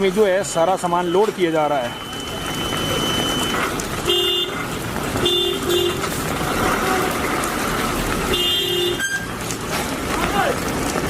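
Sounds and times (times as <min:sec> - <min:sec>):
rushing background noise: 0:00.0 - 0:11.0
vehicle horn honking: 0:02.0 - 0:04.6, 0:05.2 - 0:06.1, 0:08.3 - 0:09.4.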